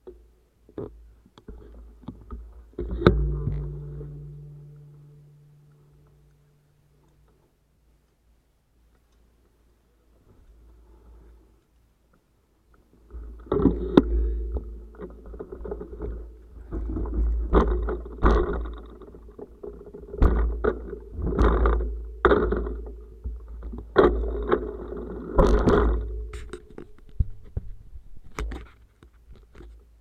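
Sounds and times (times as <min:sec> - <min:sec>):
bicycle rattling over rough road: 0:13.2 - 0:28.0.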